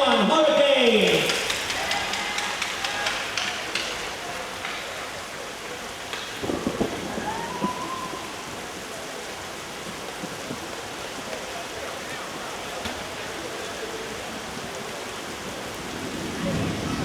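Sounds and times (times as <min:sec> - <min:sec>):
heavy rain drumming on a roof: 0:00.0 - 0:17.0
loud knocks: 0:01.0 - 0:04.9.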